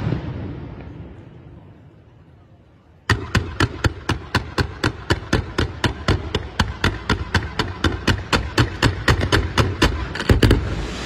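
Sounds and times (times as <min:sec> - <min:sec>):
fireworks launch reports: 0:00.0 - 0:04.3.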